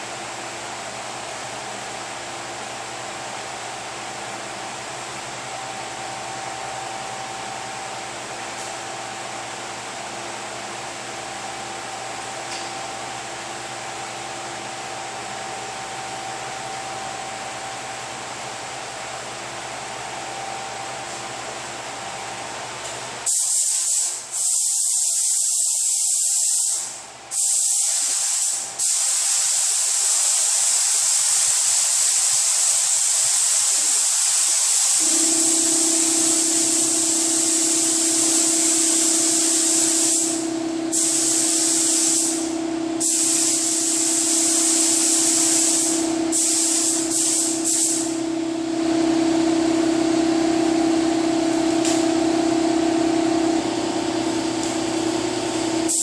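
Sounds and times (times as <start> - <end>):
paint spray gun hissing: 23.3 - 48.3, 51.7 - 56.0
steady low hum: 35.0 - 56.0.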